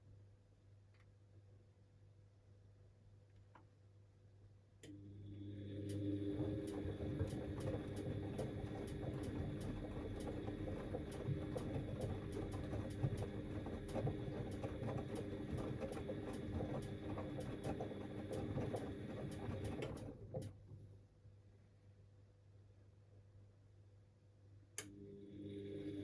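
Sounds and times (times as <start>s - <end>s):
washing machine churning: 5.0s - 20.6s.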